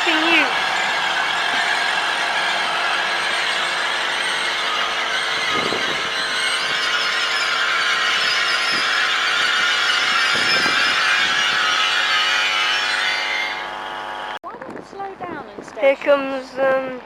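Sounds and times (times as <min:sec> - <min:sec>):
train wheels squealing: 0:00.0 - 0:14.3.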